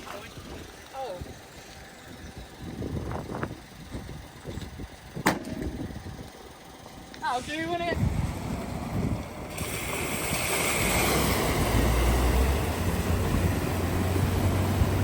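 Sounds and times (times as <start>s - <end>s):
low engine hum: 0.0s - 15.0s
broad rushing noise: 7.2s - 15.0s.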